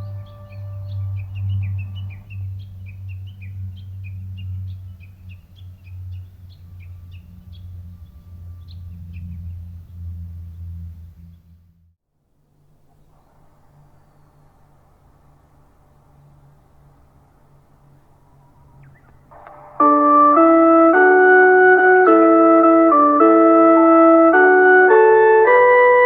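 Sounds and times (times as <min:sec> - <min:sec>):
small birds chirping: 0:00.0 - 0:11.6, 0:12.8 - 0:19.9
loud steady low hum: 0:00.0 - 0:12.0.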